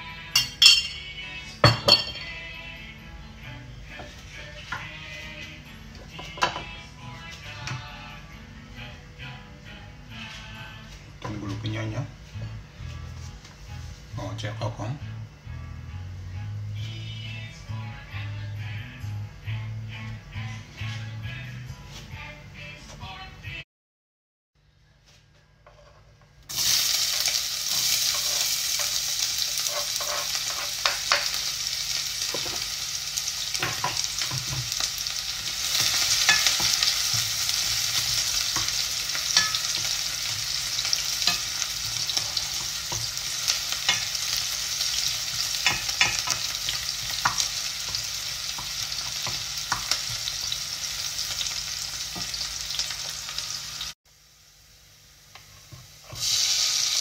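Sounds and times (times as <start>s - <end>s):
onions sizzling in oil: 26.5s - 57.0s.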